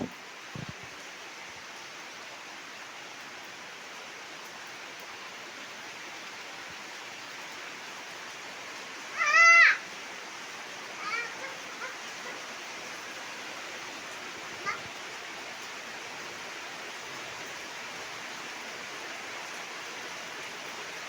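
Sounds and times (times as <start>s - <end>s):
rain falling: 0.0s - 21.0s
high-pitched rising cry: 9.2s - 9.8s.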